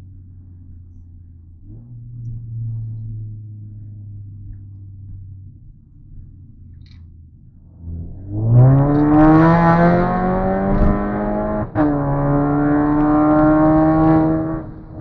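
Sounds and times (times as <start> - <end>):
car engine accelerating hard: 7.8 - 15.0.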